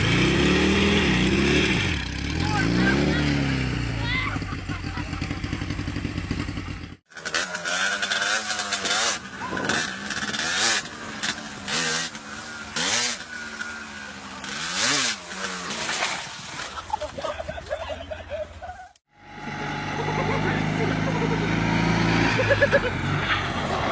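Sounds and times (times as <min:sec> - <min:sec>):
motorcycle engine revving: 0:00.0 - 0:16.2, 0:19.0 - 0:23.9.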